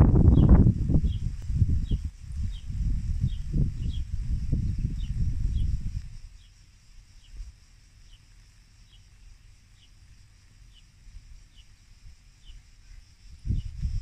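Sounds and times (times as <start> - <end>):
wind rumble on microphone: 0.0 - 7.7, 11.1 - 14.0
insects droning: 0.0 - 14.0.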